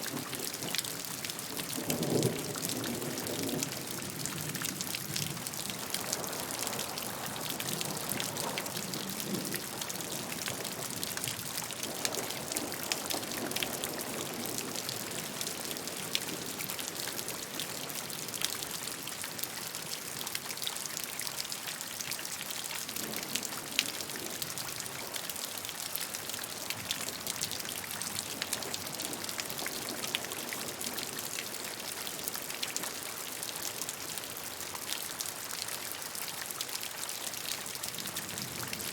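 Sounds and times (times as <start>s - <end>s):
steady rain hiss: 0.0s - 20.1s.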